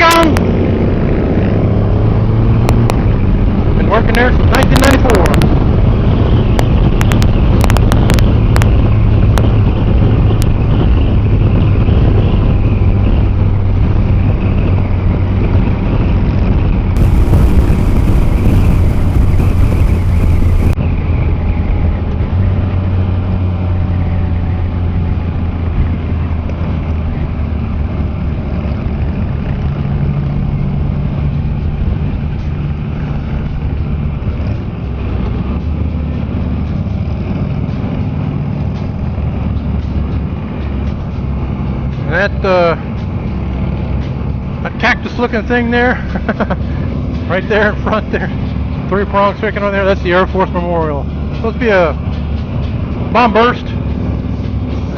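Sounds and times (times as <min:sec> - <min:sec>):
wind rush on microphone: 0:00.1 - 0:20.9
low engine drone: 0:17.0 - 0:20.8.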